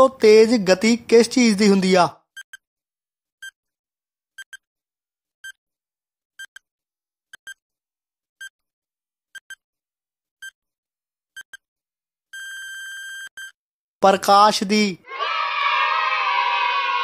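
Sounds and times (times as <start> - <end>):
electronic tick beeps: 2.4 - 2.6, 4.4 - 4.7, 9.4 - 9.6, 12.4 - 13.6.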